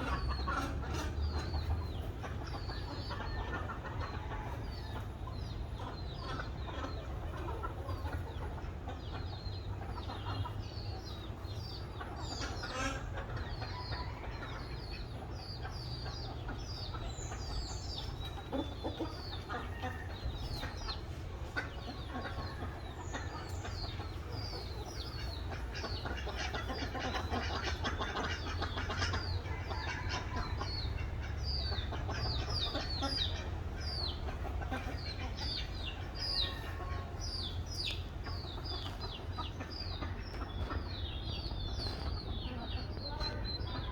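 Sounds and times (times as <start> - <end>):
birds chirping: 0.0 - 43.9
steady low rumble: 19.1 - 43.9.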